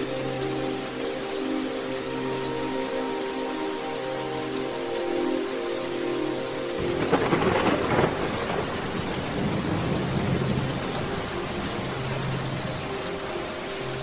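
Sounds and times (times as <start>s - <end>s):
heavy rain falling: 0.0s - 14.0s
thunderclap: 6.8s - 10.5s.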